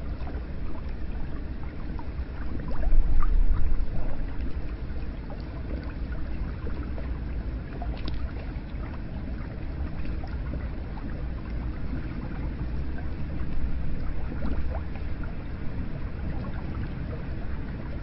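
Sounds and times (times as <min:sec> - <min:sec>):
low rumble: 0:00.0 - 0:18.0
water drips and splashes: 0:00.0 - 0:18.0
water running steadily: 0:00.0 - 0:18.0.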